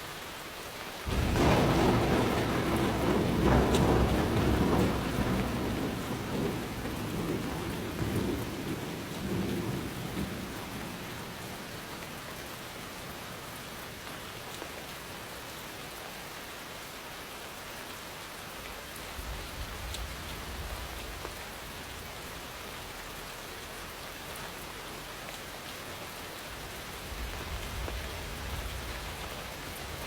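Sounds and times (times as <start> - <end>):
rain falling: 0.0 - 30.0
thunder rumble: 1.1 - 14.4, 19.1 - 23.9, 26.2 - 30.0.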